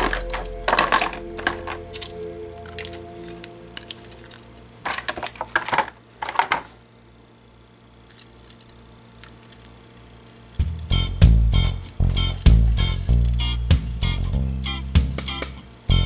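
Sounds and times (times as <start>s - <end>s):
packaging rustling: 0.0s - 6.8s
music with guitar and bass: 10.6s - 16.0s.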